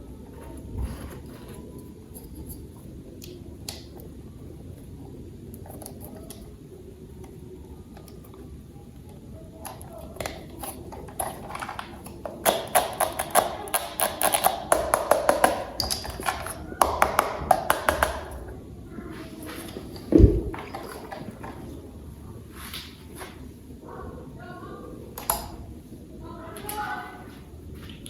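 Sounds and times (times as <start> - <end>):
heavy thump: 20.1 - 20.7.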